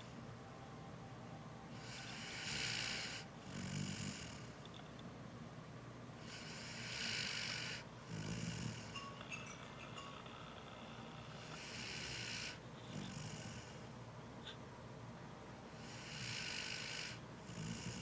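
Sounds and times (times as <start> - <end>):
dog snoring: 1.7 - 4.6, 6.2 - 9.2, 10.2 - 13.9, 15.8 - 18.0.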